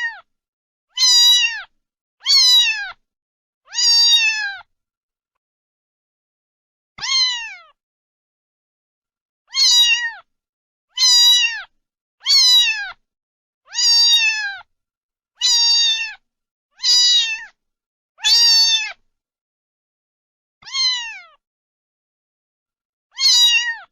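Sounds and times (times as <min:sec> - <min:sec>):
cat meowing: 0:00.0 - 0:00.3, 0:00.9 - 0:03.0, 0:03.7 - 0:04.7, 0:07.0 - 0:07.8, 0:09.5 - 0:10.3, 0:10.9 - 0:13.0, 0:13.7 - 0:14.7, 0:15.4 - 0:16.2, 0:16.8 - 0:17.6, 0:18.2 - 0:19.0, 0:20.6 - 0:21.4, 0:23.1 - 0:23.9.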